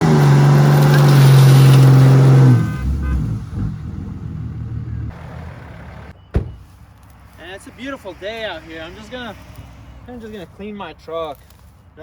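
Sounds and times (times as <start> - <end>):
diesel truck engine revving: 0.0 - 6.2.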